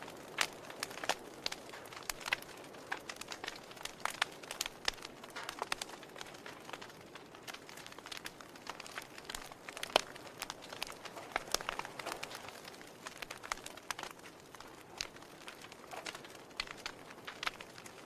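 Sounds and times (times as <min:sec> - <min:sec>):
logs crackling and popping: 0:00.0 - 0:18.0
soft hiss of flames: 0:00.0 - 0:18.0.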